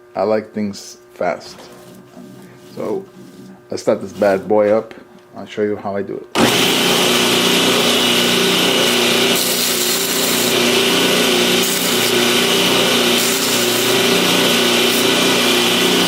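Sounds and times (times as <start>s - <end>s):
power tool whining hum: 6.3s - 16.0s.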